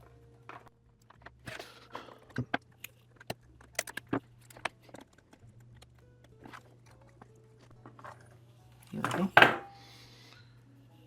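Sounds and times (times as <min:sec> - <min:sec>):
plastic parts clicking into place: 0:00.4 - 0:08.2.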